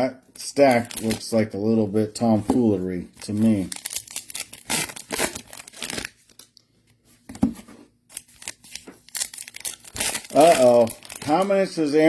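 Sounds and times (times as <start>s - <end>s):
foil wrappers crinkling and tearing: 0.5s - 1.5s, 3.1s - 6.6s, 8.1s - 12.0s.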